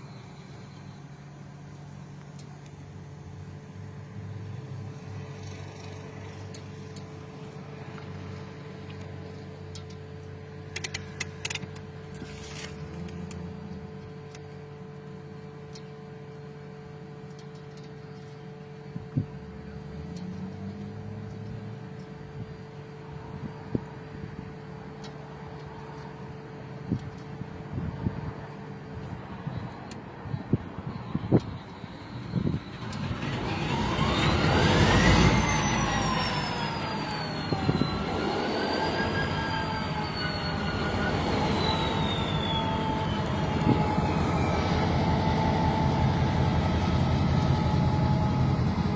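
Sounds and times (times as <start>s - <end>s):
diesel locomotive engine starting: 0.0s - 48.9s
machine humming: 31.6s - 48.9s
steady tone: 31.7s - 48.9s.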